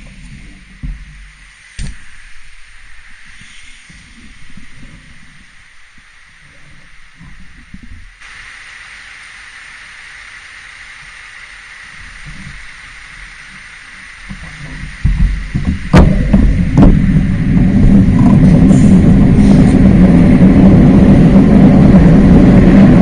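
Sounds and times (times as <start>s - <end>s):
car engine rumble: 0.0s - 23.0s
steady faint hiss: 0.0s - 23.0s
sharp knocks: 15.0s - 17.2s.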